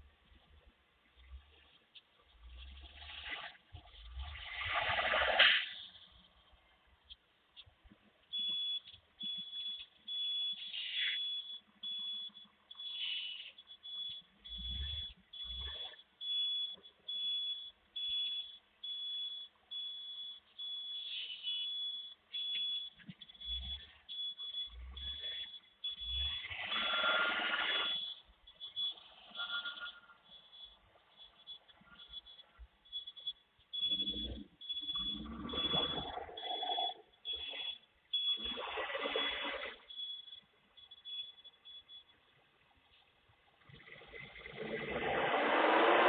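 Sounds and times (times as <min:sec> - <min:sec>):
reversing alarm beeping: 0:02.4 - 0:06.6, 0:07.6 - 0:46.0
truck noise rushing burst: 0:44.0 - 0:46.0.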